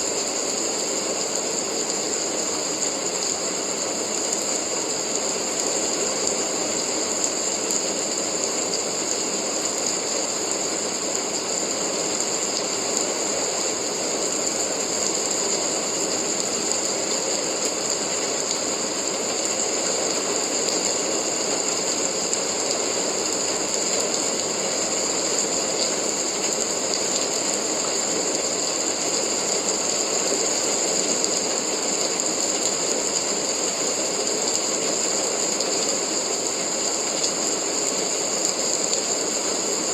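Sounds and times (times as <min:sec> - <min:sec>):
steady rain hiss and patter: 0:00.0 - 0:39.9.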